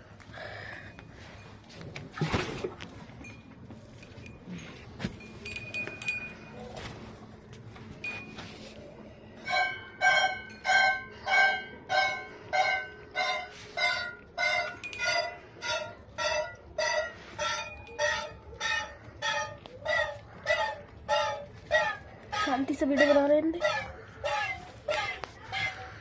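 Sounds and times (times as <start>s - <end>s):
small metal clinks: 3.2s - 6.8s, 14.7s - 15.4s, 17.4s - 18.4s.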